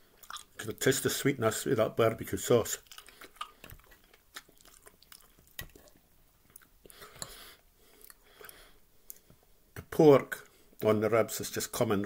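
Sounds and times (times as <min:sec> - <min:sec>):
faint chewing of meat: 0:00.0 - 0:01.0, 0:02.4 - 0:09.5.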